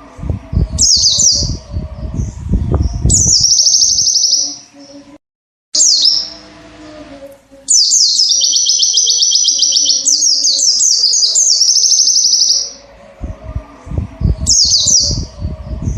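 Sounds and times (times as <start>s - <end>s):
low irregular thumps: 0.0s - 3.4s, 13.1s - 15.9s
bird twittering song: 0.4s - 5.2s, 5.8s - 6.5s, 7.6s - 13.5s, 14.2s - 15.9s.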